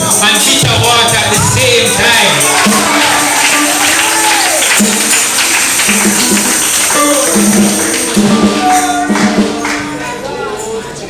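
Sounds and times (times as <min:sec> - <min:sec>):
tambourine shaking: 0:00.0 - 0:10.7
sustained held notes: 0:00.3 - 0:04.1.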